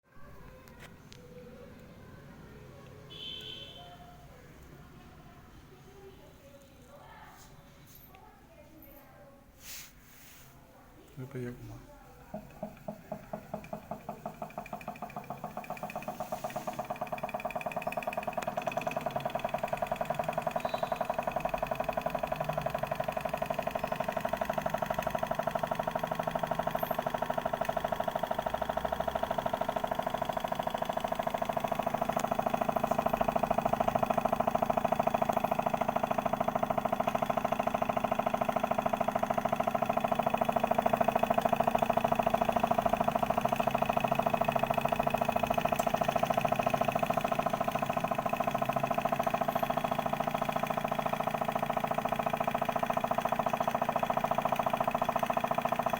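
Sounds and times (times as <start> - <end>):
stirling engine running: 11.6 - 55.9.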